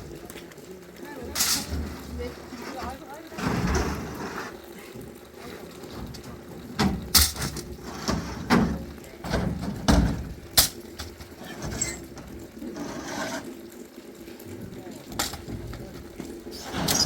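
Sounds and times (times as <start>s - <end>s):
knocks and thumps: 5.9s - 12.4s.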